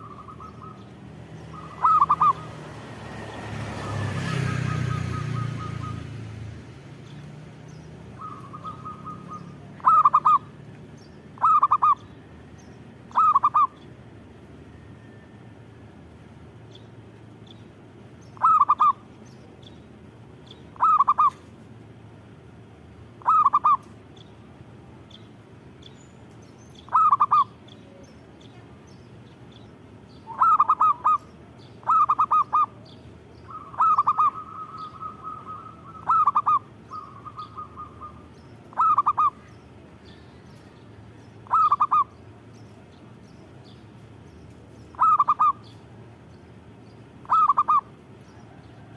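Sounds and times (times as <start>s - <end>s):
dove cooing: 0.0s - 0.9s, 1.5s - 2.6s, 8.2s - 10.5s, 11.4s - 12.0s, 13.1s - 13.8s, 18.4s - 19.0s, 20.8s - 21.5s, 23.2s - 23.9s, 26.9s - 27.6s, 30.2s - 39.5s, 41.4s - 42.2s, 44.9s - 45.7s, 47.2s - 47.9s.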